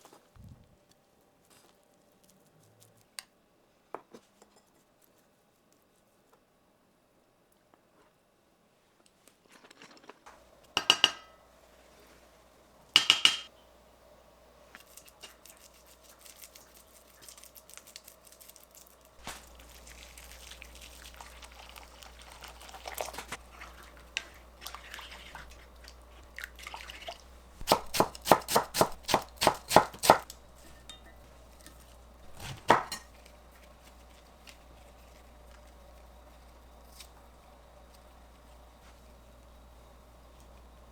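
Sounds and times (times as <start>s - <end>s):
utensils clinking on dishes: 10.8s - 11.4s, 30.6s - 31.7s, 32.3s - 33.2s.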